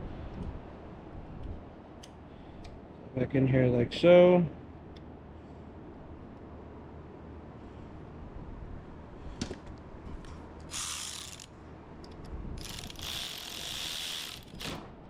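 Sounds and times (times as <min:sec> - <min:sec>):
ratchet wrench clicking: 0:10.6 - 0:14.8.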